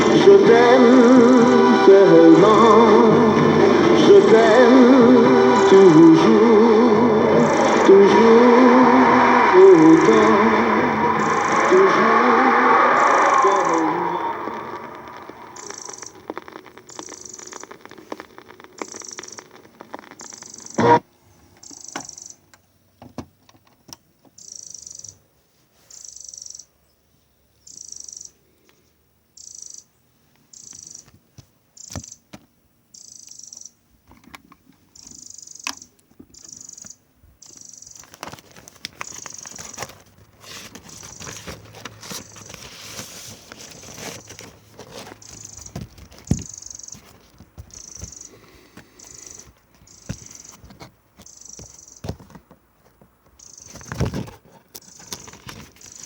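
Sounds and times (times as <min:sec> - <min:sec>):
vinyl record crackle: 0:00.0 - 0:21.1, 0:37.4 - 0:56.0.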